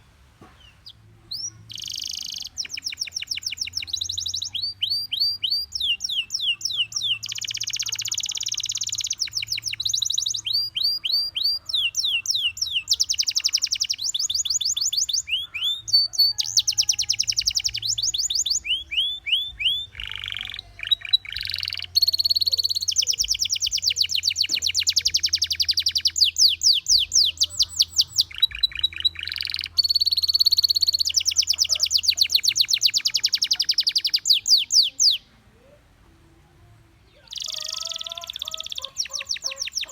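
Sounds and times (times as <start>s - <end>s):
canary singing trills: 0.6s - 39.9s.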